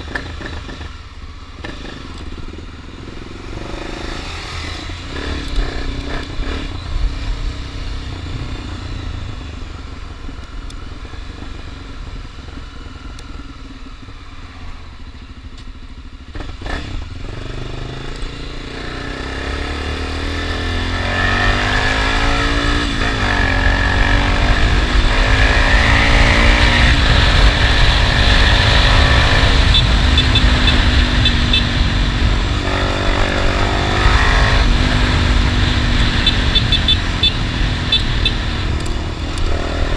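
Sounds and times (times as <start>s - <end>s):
motorcycle engine accelerating: 0.0s - 39.9s
wind rush on microphone: 22.3s - 39.9s.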